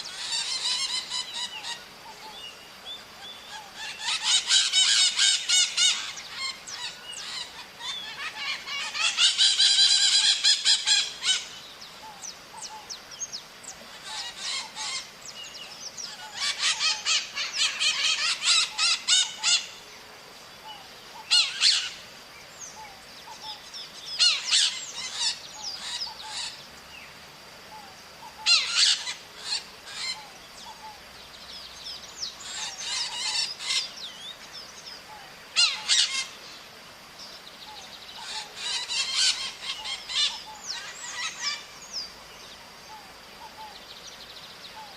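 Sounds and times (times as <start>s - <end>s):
parrots screeching calls: 0.0s - 2.4s, 3.5s - 11.6s, 13.9s - 15.1s, 16.1s - 19.8s, 21.2s - 22.0s, 24.2s - 26.6s, 28.2s - 30.9s, 32.4s - 33.9s, 35.5s - 36.4s, 38.2s - 41.7s.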